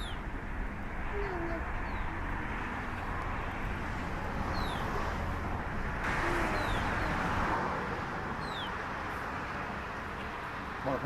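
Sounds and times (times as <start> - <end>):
small bird chirping: 0.0 - 0.2, 4.5 - 4.9.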